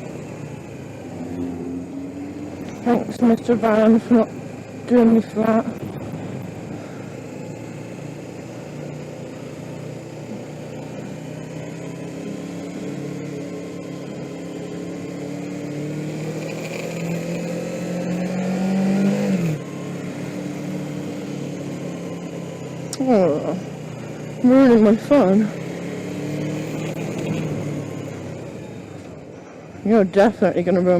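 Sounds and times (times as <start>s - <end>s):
motorcycle engine accelerating: 0.0s - 30.9s.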